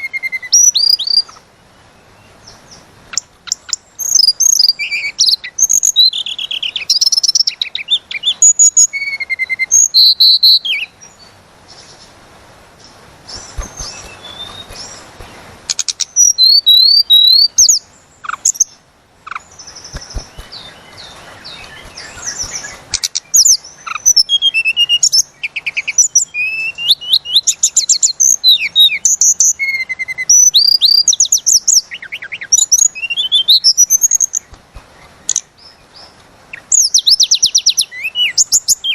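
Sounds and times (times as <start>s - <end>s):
songbird whistling rapid notes: 13.3s - 18.7s, 19.3s - 25.2s.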